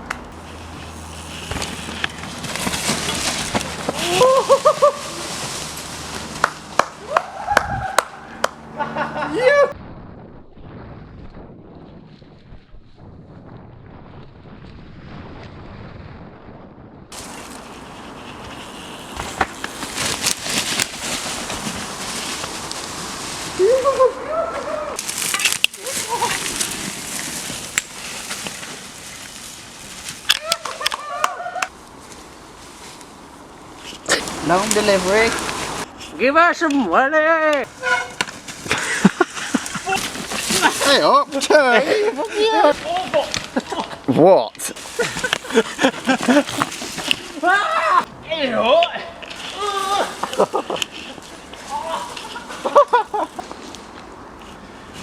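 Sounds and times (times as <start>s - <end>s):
bike clattering over rough ground: 0.0s - 8.8s, 17.1s - 23.6s, 25.0s - 35.9s, 36.8s - 55.0s
tyre and wind noise: 0.0s - 55.0s
rider crying out: 0.6s - 5.6s, 30.3s - 31.7s, 49.0s - 50.7s, 51.6s - 53.3s
high-pitched giggling: 8.7s - 9.8s.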